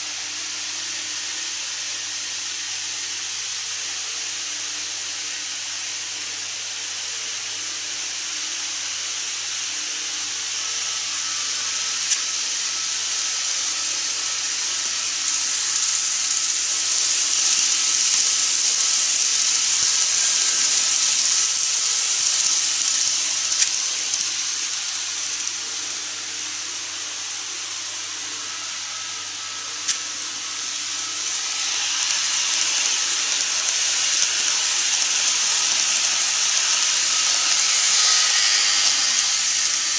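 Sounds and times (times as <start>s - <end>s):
model train rumbling on track: 0.0s - 39.9s
sharp clicks: 29.9s - 39.9s.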